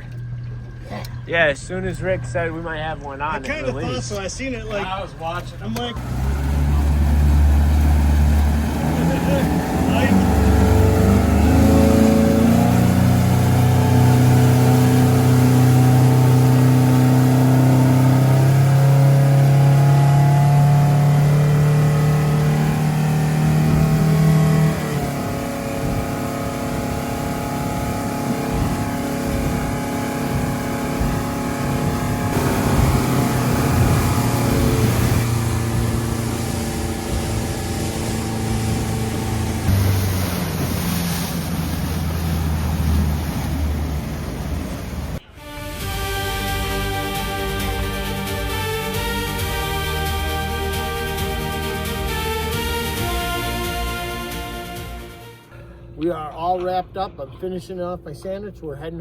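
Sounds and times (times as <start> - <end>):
motorboat engine running: 0.0 - 59.0
wind and water rushing: 6.0 - 55.2.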